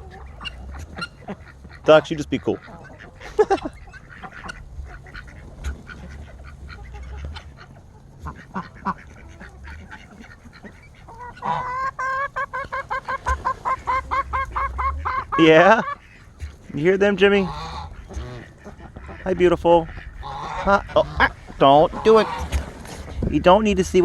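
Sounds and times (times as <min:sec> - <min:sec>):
geese honking: 0:00.0 - 0:24.0.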